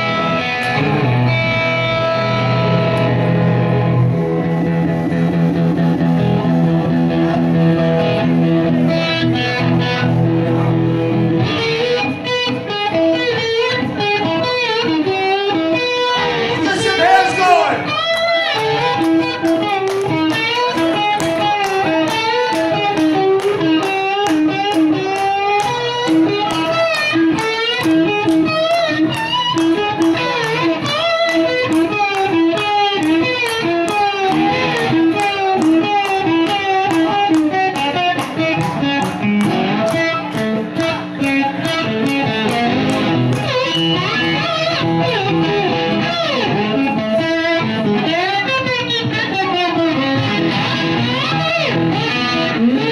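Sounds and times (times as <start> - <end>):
bass guitar: 0.0 - 52.9
electric guitar lead: 0.0 - 52.9.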